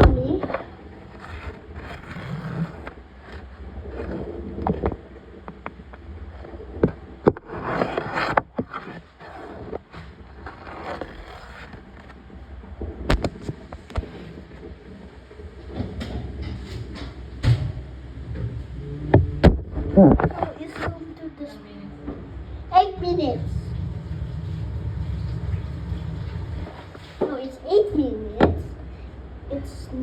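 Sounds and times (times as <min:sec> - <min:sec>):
machine churning: 0:22.3 - 0:27.4.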